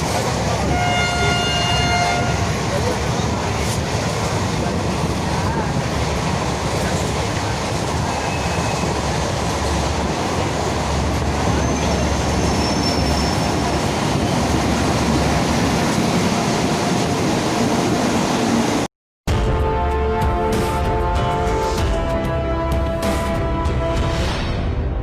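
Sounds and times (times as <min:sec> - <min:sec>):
train wheels rumbling: 0:00.0 - 0:18.9
music: 0:19.3 - 0:25.0.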